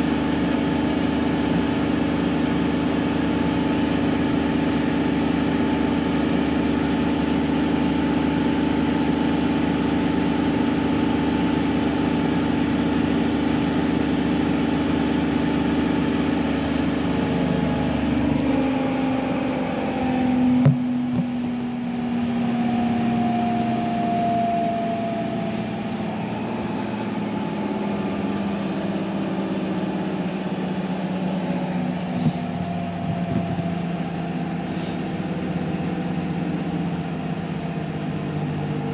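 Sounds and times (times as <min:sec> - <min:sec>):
washing machine drum humming: 0:08.0 - 0:34.6
washing machine knock: 0:20.6 - 0:21.4.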